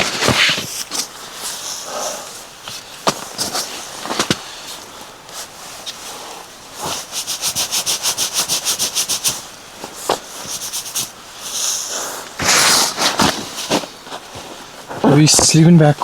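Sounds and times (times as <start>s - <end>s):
loud rustle: 0.0s - 15.6s
zipper being pulled: 12.4s - 13.8s.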